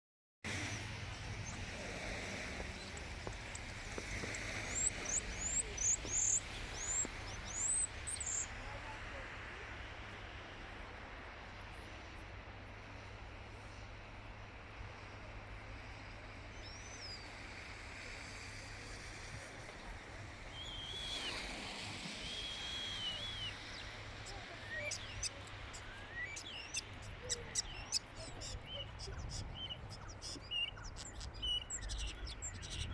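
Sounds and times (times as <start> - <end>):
steady low rumble: 0.5 - 16.5
starling singing: 4.7 - 8.4, 22.6 - 32.9
starling whistling: 20.6 - 21.5, 22.2 - 24.0, 24.6 - 28.0.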